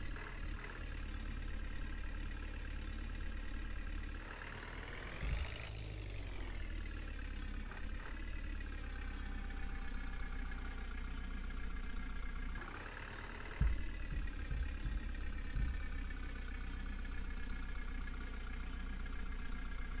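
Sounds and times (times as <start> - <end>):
backhoe diesel engine revving: 0.0 - 20.0
heavy knocks: 13.6 - 16.0.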